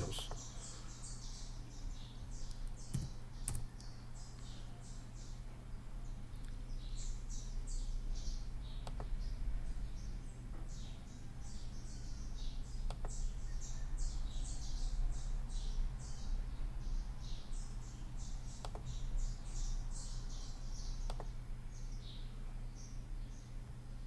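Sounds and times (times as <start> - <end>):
small birds chirping: 0.0 - 24.0
steady low hum: 0.0 - 24.0
computer mouse clicks: 2.4 - 3.9, 8.8 - 9.2, 12.8 - 13.2, 18.6 - 18.9, 21.0 - 21.4.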